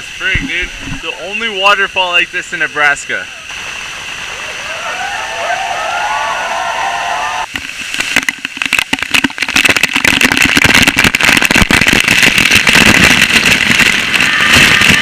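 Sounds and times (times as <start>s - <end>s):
waterfall crashing: 3.4s - 15.0s.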